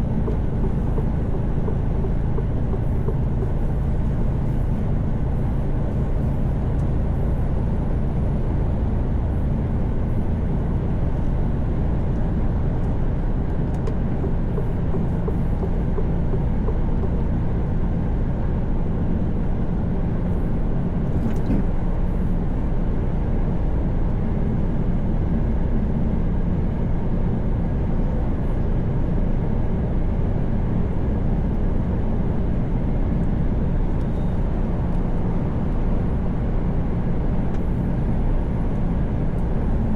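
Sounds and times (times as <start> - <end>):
truck engine drone: 0.0 - 39.9.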